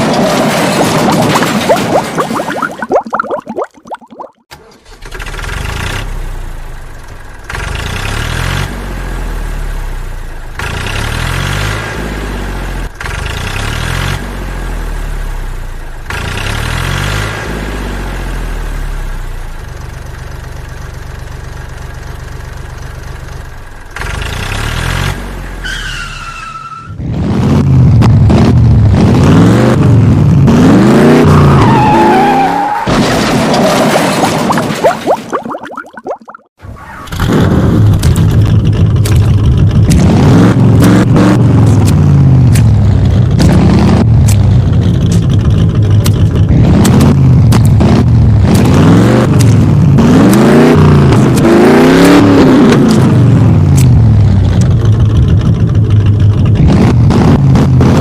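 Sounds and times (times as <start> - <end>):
vehicle engine revving: 7.4 - 15.5, 27.0 - 31.6, 36.8 - 58.0.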